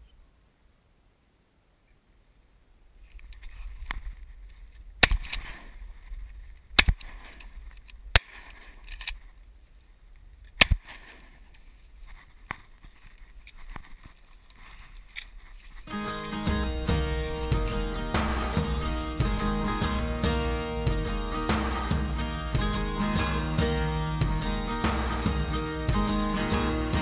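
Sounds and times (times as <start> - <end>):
sharp loud bangs: 16.3 - 27.0.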